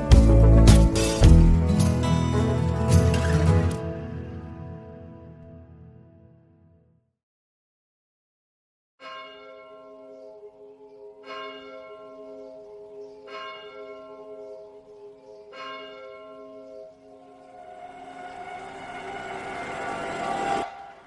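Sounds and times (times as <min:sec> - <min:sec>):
church bell tolling: 0:09.0 - 0:10.6, 0:11.2 - 0:14.8, 0:15.5 - 0:18.3
rushing noise: 0:17.4 - 0:21.0.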